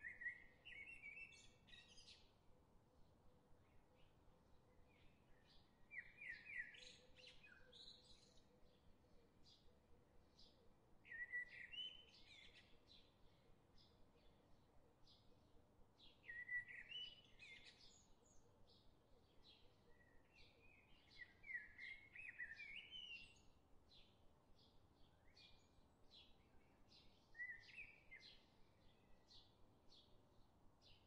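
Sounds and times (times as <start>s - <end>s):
twittering birdsong: 16.0s - 31.0s.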